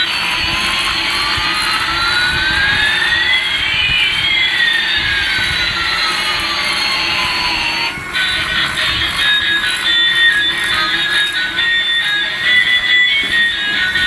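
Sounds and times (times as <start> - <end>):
jet engine hiss: 0.0 - 14.0
rising and falling whines: 0.0 - 14.0.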